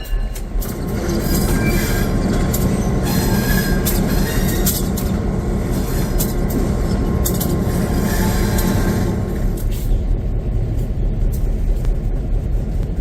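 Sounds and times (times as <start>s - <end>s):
diesel locomotive rumbling: 0.0s - 13.0s
sharp clicks and rattles: 6.1s - 7.8s.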